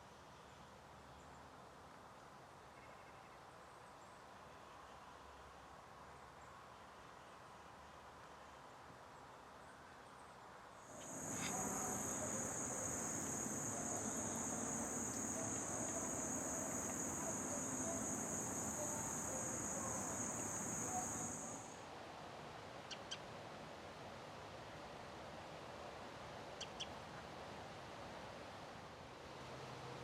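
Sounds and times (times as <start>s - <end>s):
outdoor background noise: 0.0s - 30.0s
insect trilling: 10.9s - 21.7s.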